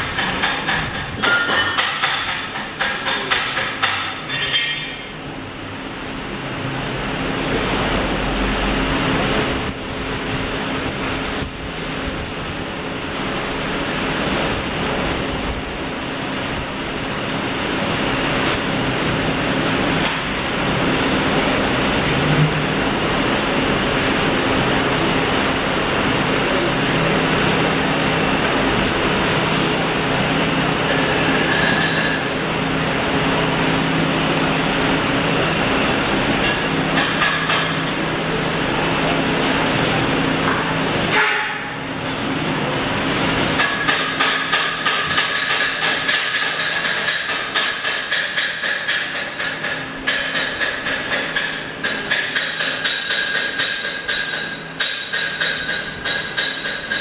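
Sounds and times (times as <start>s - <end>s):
welding arc hissing and crackling: 0.0s - 57.0s
low machine hum: 4.3s - 44.1s.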